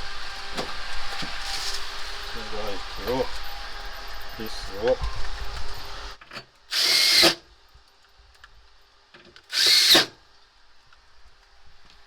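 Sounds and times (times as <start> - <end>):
power driver whining: 9.5 - 10.2.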